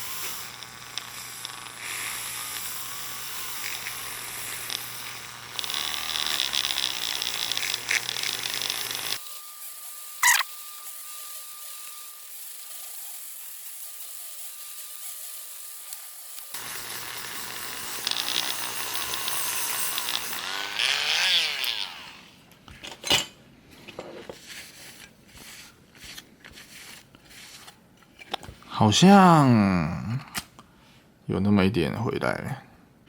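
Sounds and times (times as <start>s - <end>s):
rotary tool whining: 0.0s - 22.4s.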